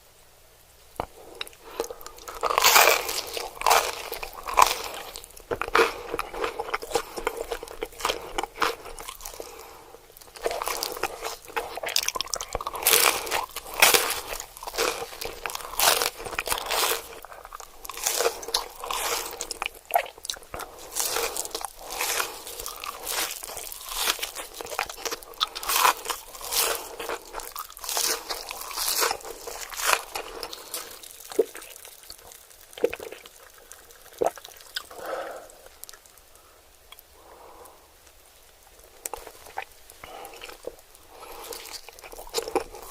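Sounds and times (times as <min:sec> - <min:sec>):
crunchy bites into crispy food: 0:01.0 - 0:37.1, 0:38.6 - 0:42.9.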